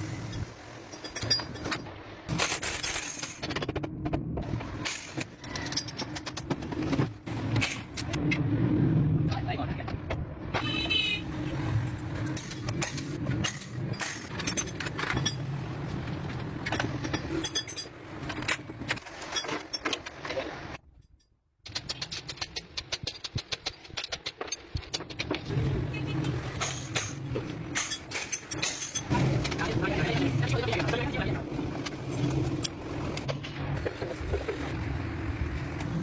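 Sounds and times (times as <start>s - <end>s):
metallic clicks and rattles: 21.0s - 25.5s, 26.6s - 31.2s.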